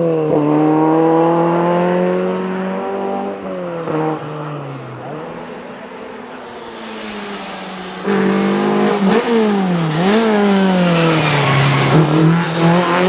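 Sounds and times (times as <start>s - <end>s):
rally car engine running hard: 0.0s - 13.0s.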